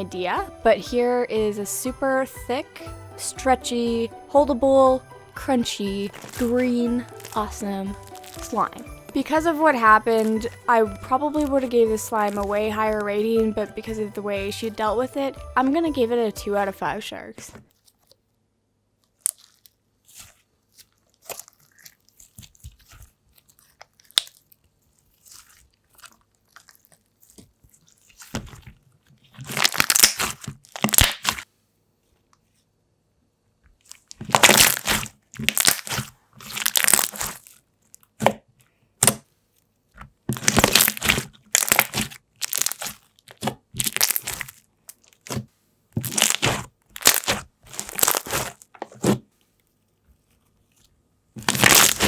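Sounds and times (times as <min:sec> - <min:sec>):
slime crackling and popping: 0:06.0 - 0:14.0, 0:19.1 - 0:31.4, 0:33.8 - 0:38.4, 0:40.3 - 0:45.4, 0:46.0 - 0:49.2, 0:51.4 - 0:52.0.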